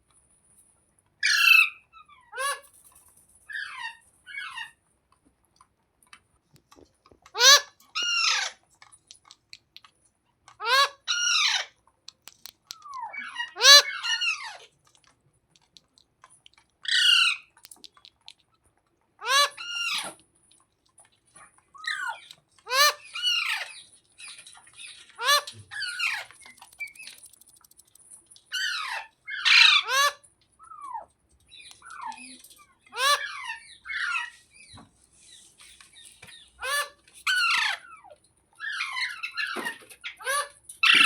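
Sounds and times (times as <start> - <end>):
parakeet squawking: 7.4 - 8.6, 10.6 - 11.7, 13.0 - 14.6, 28.5 - 30.2, 31.8 - 34.6.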